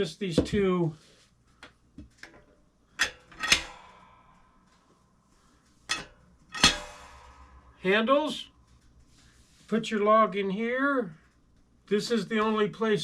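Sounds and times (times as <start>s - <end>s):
metal clanks and knocks: 2.0s - 3.8s, 5.9s - 7.3s.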